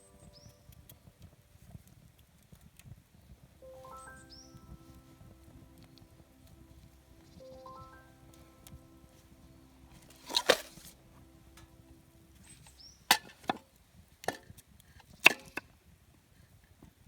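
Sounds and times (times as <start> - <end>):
wood being chopped: 13.1 - 13.6, 15.2 - 15.6.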